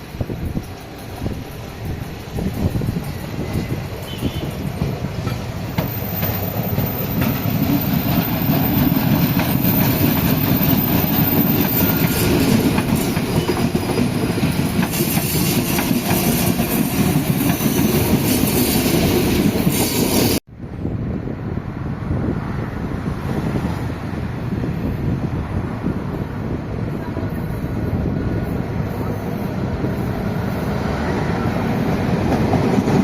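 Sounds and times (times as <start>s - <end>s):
train wheels clattering on rails: 0.0s - 20.4s.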